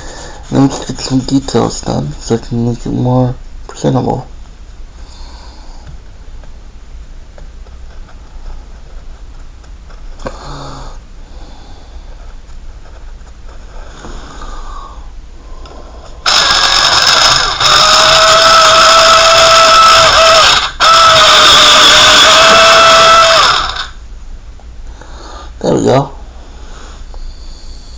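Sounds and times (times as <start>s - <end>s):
background hiss: 0.0s - 16.3s, 22.3s - 27.9s
rooster crowing: 17.6s - 24.0s.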